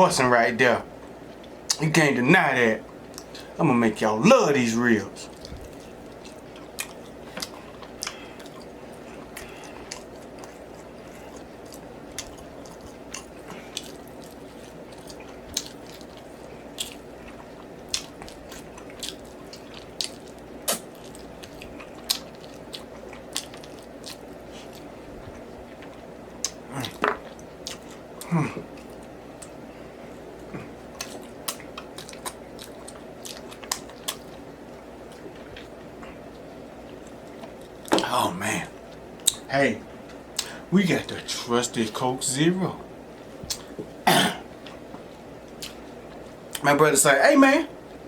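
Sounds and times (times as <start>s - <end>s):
steady low hum: 0.0s - 48.0s
chewing and lip-smacking: 2.8s - 3.5s, 5.2s - 29.6s, 30.2s - 38.0s, 38.7s - 40.6s, 43.2s - 44.0s, 44.6s - 46.6s.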